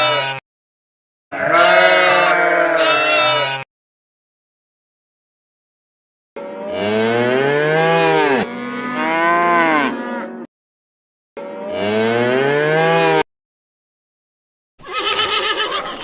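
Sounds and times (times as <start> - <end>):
cow mooing: 1.3 - 3.4, 6.4 - 10.5, 11.4 - 13.2.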